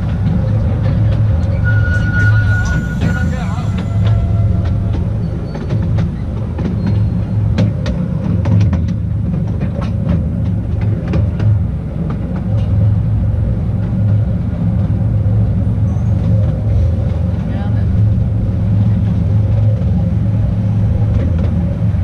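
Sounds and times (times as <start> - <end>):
train wheels rumbling on rails: 0.0 - 22.0
sharp clicks and knocks: 3.8 - 12.8.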